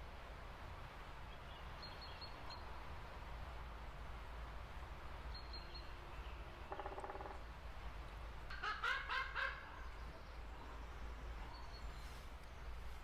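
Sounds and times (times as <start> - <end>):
birds calling: 5.3 - 12.8
harsh bird calls: 5.4 - 7.5.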